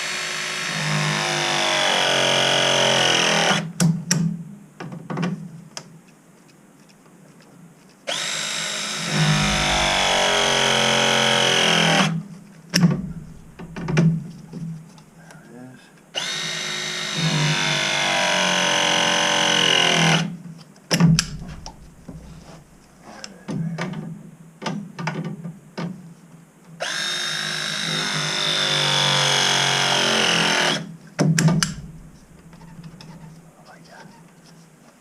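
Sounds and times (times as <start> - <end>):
cordless drill whining: 0.0 - 3.7, 8.1 - 12.2, 16.2 - 20.3, 26.8 - 30.9.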